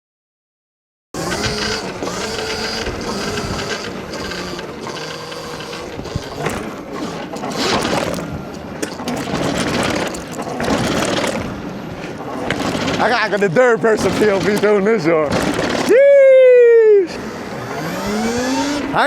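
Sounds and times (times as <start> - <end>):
electric motor whining: 1.2 - 11.8, 14.0 - 16.0, 17.0 - 19.0
drivetrain rattling: 1.2 - 15.9.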